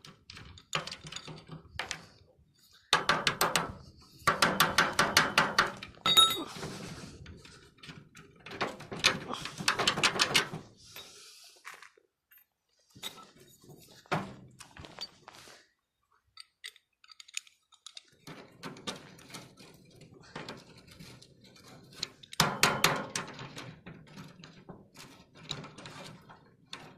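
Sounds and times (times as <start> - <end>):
metal clinking and knocking: 0.0 - 2.1, 3.0 - 6.7, 16.3 - 26.9.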